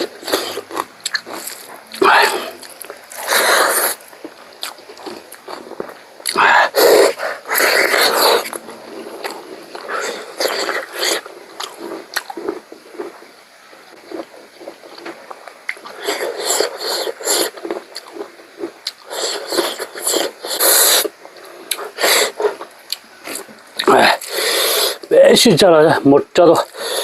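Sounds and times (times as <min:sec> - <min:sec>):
wet chewing and mouth smacks: 0:00.0 - 0:25.1
noisy breaths and sniffs: 0:01.4 - 0:04.1, 0:06.3 - 0:12.0, 0:15.9 - 0:17.8, 0:19.0 - 0:22.7, 0:24.0 - 0:25.1, 0:26.6 - 0:27.0.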